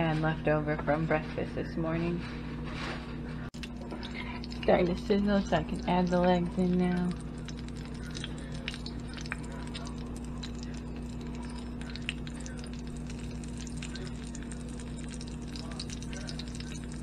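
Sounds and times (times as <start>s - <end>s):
steady low hum: 0.0s - 17.0s
crackles and pops: 3.6s - 17.0s
meat frying in grease: 3.6s - 17.0s.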